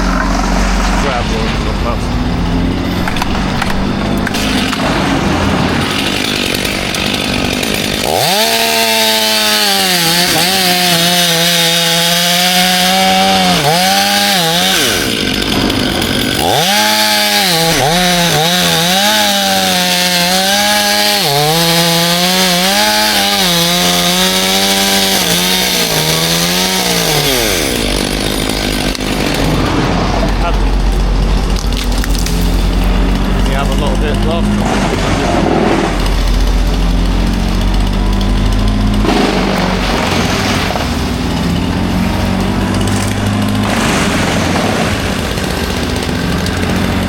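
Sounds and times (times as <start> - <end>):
chainsaw revving and cutting: 0.0 - 47.0.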